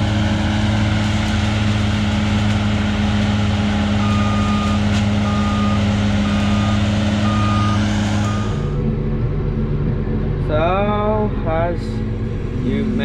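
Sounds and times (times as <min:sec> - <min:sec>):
heavy vehicle engine running: 0:00.0 - 0:13.0
reversing alarm beeping: 0:04.0 - 0:08.8.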